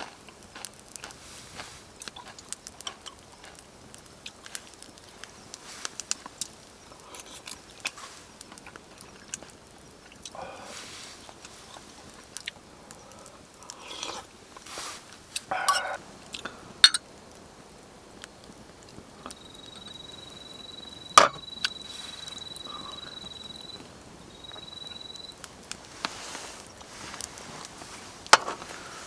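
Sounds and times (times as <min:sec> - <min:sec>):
person chewing crunchy food: 0:00.0 - 0:04.8.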